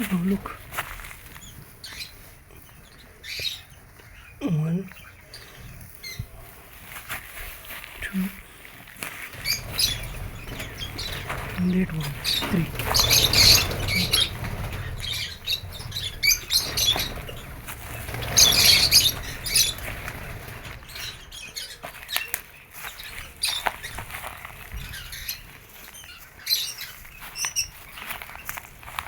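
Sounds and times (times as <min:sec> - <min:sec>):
lovebirds chirping and squawking: 0:00.0 - 0:29.0
clicks and rustling: 0:08.8 - 0:24.9.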